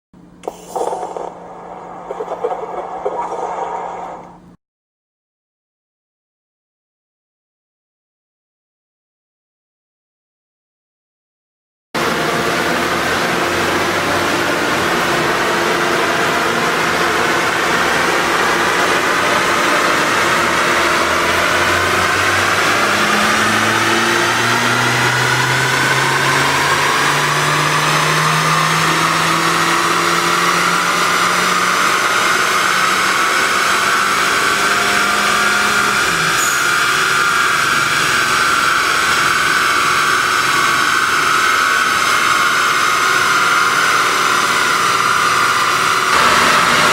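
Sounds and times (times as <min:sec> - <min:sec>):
turbocharged engine revving: 0:12.0 - 0:46.9.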